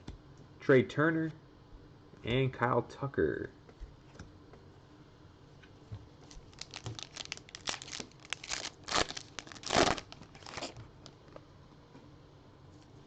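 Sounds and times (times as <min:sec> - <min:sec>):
wrapper tearing and crinkling: 0:06.3 - 0:11.1.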